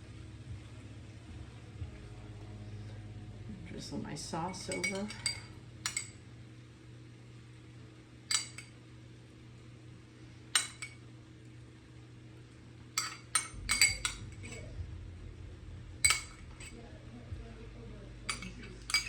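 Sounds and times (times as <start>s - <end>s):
faint low hum: 0.0s - 19.0s
utensil clinking against cookware: 4.5s - 6.2s, 8.3s - 8.8s, 10.6s - 11.0s, 13.0s - 14.7s, 16.0s - 16.8s, 18.3s - 19.0s.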